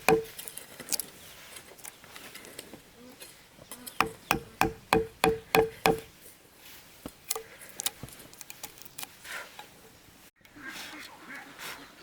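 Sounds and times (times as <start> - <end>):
sharp ringing knocks: 0.0 - 0.4, 4.0 - 6.1.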